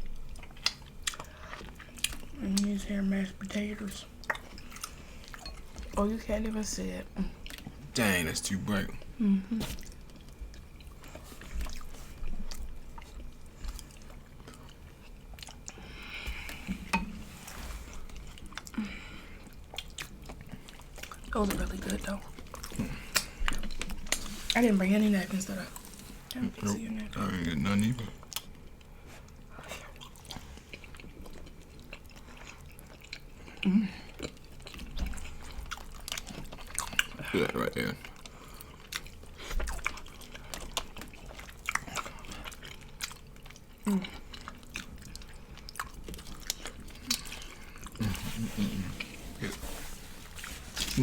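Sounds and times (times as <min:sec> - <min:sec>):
chewing and wet mouth clicks: 0:00.3 - 0:02.8, 0:04.2 - 0:06.0, 0:09.8 - 0:15.8, 0:19.5 - 0:21.3, 0:22.3 - 0:24.3, 0:27.9 - 0:29.4, 0:30.0 - 0:33.3, 0:34.2 - 0:48.0
low hum from a voice: 0:02.1 - 0:10.0, 0:20.4 - 0:28.3, 0:33.4 - 0:34.4, 0:36.3 - 0:38.7, 0:43.7 - 0:44.4, 0:46.6 - 0:51.0.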